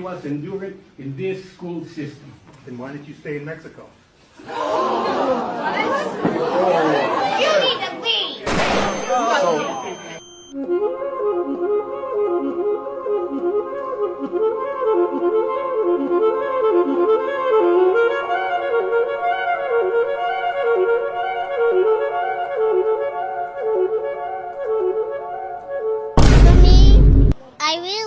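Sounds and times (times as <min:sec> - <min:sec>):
reedy wind instrument melody: 0:09.1 - 0:26.8.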